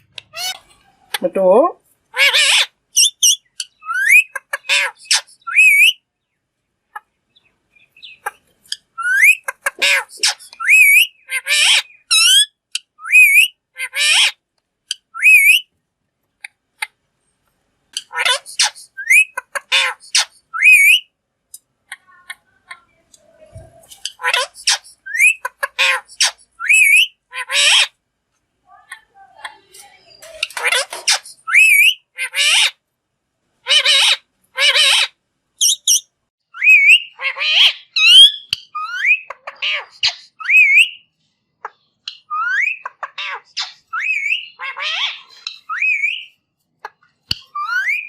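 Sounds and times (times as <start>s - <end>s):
parakeet squawking: 0.1s - 1.2s, 2.1s - 6.0s, 8.0s - 15.6s, 18.0s - 21.0s, 23.8s - 27.9s, 29.8s - 32.8s, 33.6s - 36.0s, 36.6s - 41.0s, 42.1s - 46.3s, 46.9s - 48.0s
parakeet whistling: 3.0s - 6.0s, 9.0s - 9.5s, 10.2s - 12.4s, 13.0s - 13.6s, 15.1s - 15.6s, 18.2s - 21.0s, 24.2s - 27.2s, 31.1s - 32.0s, 35.6s - 39.3s, 40.4s - 41.0s, 43.6s - 44.6s.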